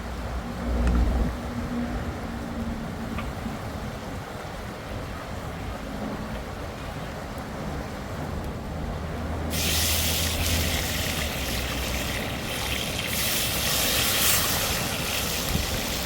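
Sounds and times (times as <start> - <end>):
river water rushing: 9.3 - 16.0
bright hiss of water: 9.5 - 16.0.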